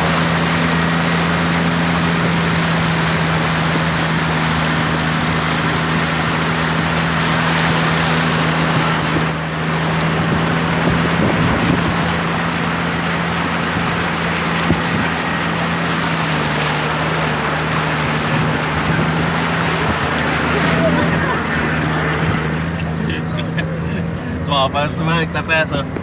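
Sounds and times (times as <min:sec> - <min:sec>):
constant rushing noise: 0:00.0 - 0:26.0
engine droning: 0:00.0 - 0:26.0.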